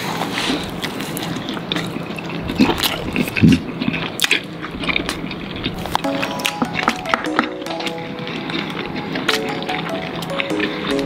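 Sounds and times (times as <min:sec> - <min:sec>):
open-mouthed chewing: 0:00.0 - 0:11.0.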